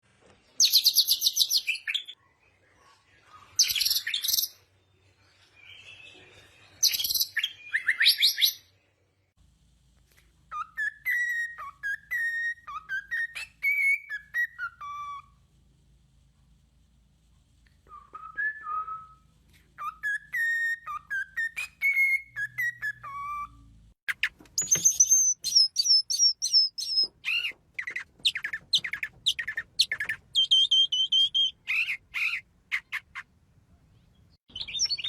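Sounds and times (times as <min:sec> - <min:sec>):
bird singing: 0:19.8 - 0:33.2, 0:34.0 - 0:35.0.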